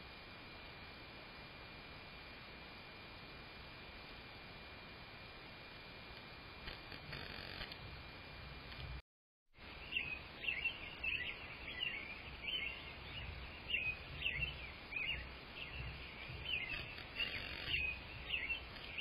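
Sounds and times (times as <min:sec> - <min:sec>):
faint steady hiss: 0:00.0 - 0:09.0, 0:09.6 - 0:19.0
bird chirping: 0:09.7 - 0:19.0.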